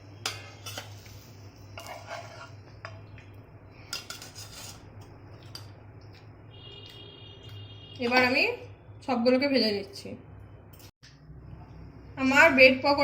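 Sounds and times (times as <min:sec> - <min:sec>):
spatula scraping against metal: 0:00.2 - 0:03.0, 0:03.8 - 0:04.9.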